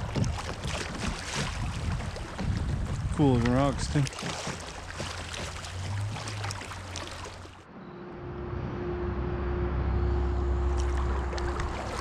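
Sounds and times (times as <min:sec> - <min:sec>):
kayak paddle strokes: 0:00.0 - 0:07.6
water splashing against hull: 0:00.0 - 0:07.7, 0:10.6 - 0:12.0
low rumble: 0:07.6 - 0:12.0
faint hum: 0:07.7 - 0:12.0.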